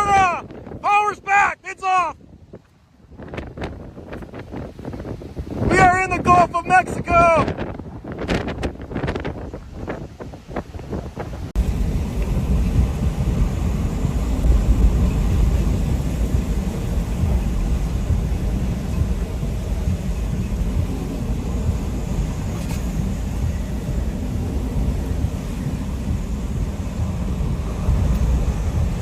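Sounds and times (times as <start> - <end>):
strong wind buffeting microphone: 0.0 - 29.0.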